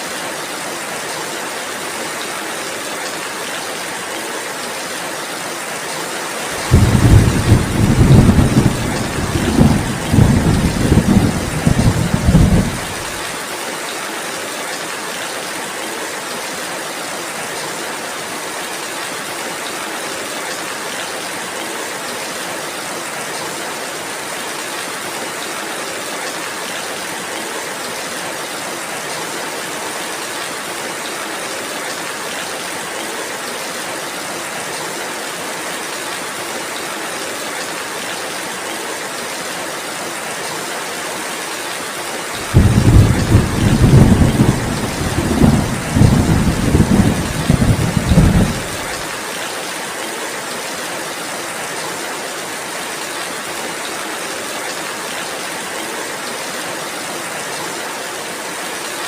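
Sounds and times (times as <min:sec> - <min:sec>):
steady rainfall: 0:00.0 - 0:59.0
rolling thunder: 0:06.6 - 0:13.2, 0:42.4 - 0:49.0.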